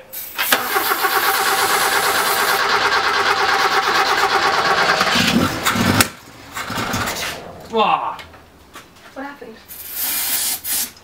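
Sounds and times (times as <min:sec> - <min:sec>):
engine cranking on starter: 0:00.4 - 0:08.4.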